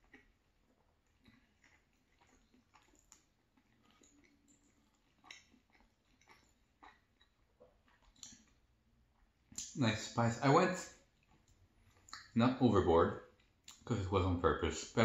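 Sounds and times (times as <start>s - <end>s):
faint close-mouthed chewing: 0.0s - 9.8s, 10.5s - 14.0s
wet mouth clicks: 1.2s - 8.6s, 9.5s - 9.8s, 11.2s - 12.4s, 13.4s - 13.9s.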